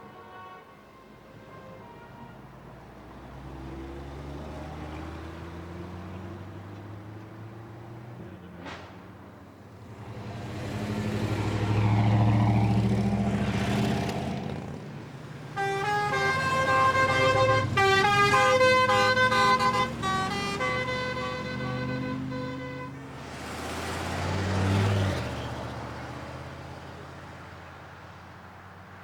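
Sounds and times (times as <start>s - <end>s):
musical car horn: 0.0s - 2.6s, 15.5s - 23.0s
car accelerating past: 3.2s - 27.6s.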